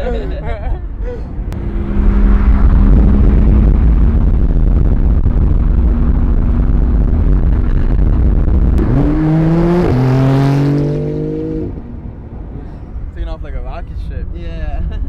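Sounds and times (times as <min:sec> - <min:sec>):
car engine accelerating hard: 0:01.4 - 0:11.9.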